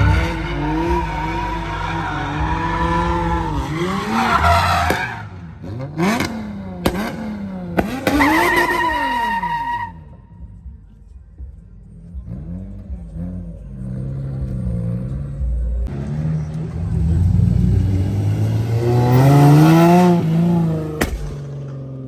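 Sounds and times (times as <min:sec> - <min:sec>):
car engine revving hard: 0:00.0 - 0:05.0, 0:16.3 - 0:21.1
tyres screeching: 0:00.0 - 0:05.3.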